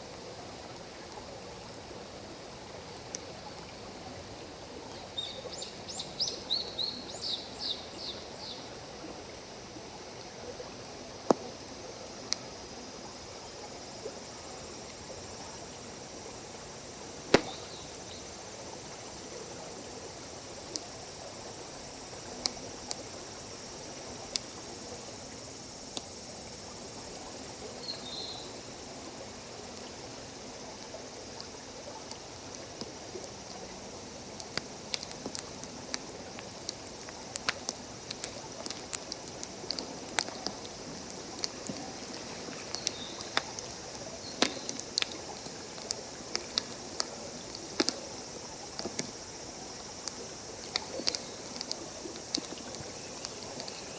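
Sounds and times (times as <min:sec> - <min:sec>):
forest stream rushing: 0:00.0 - 0:53.9
campfire crackling and popping: 0:17.1 - 0:19.0, 0:22.0 - 0:24.7, 0:31.4 - 0:53.9.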